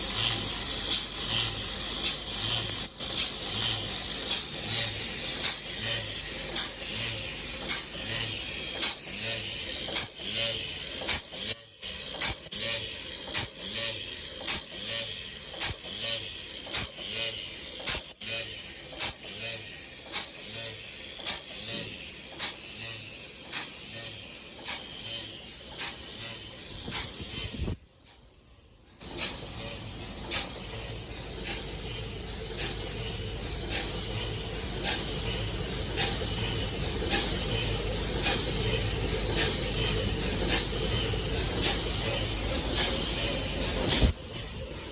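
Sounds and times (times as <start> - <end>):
machine hissing stroke: 0.0 - 44.9
steady machine background: 0.0 - 44.9
heading machine strikes: 29.0 - 44.9
low machine hum: 29.0 - 44.9.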